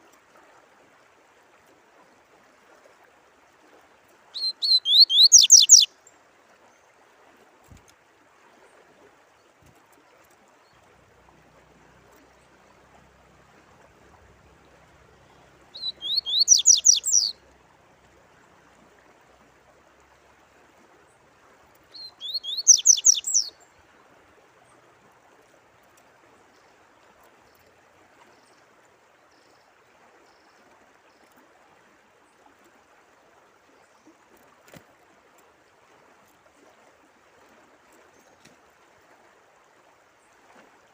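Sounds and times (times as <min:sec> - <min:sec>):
trickle of running water: 0:00.0 - 0:40.9
songbird singing: 0:04.3 - 0:06.2, 0:14.4 - 0:17.6, 0:21.8 - 0:23.8.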